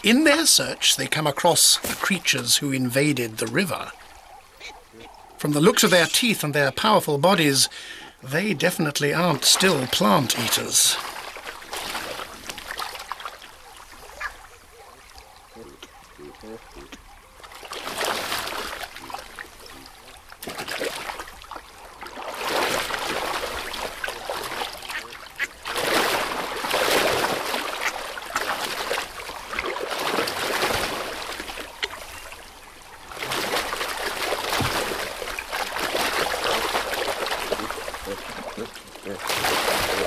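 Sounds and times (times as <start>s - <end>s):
river water splashing and rushing: 0.0s - 40.0s.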